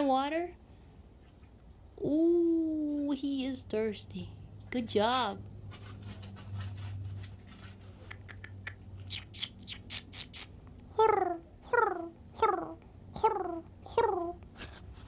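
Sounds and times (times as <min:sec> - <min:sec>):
high rising animal chirps: 0:08.1 - 0:10.6.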